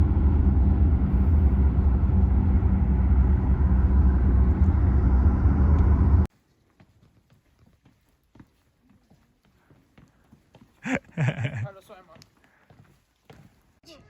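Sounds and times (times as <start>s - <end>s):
motor vehicle rumbling: 0.0s - 6.3s.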